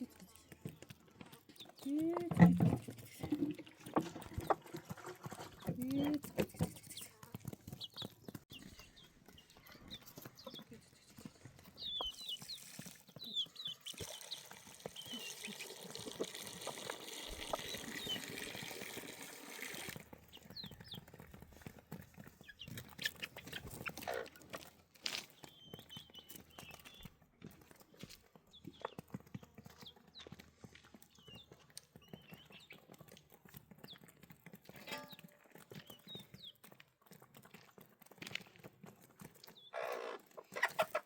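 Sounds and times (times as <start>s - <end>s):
birds chirping: 5.3s - 19.0s, 20.2s - 21.2s, 22.2s - 24.5s, 25.1s - 27.2s, 27.8s - 33.0s, 34.7s - 36.6s, 39.4s - 41.0s
flowing water: 13.9s - 20.0s.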